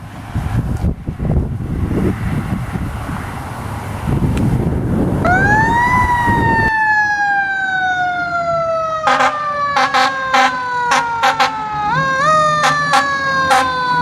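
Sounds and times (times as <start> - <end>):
fire truck siren winding: 5.2 - 14.0
air horn blasts: 9.0 - 11.6, 12.2 - 14.0.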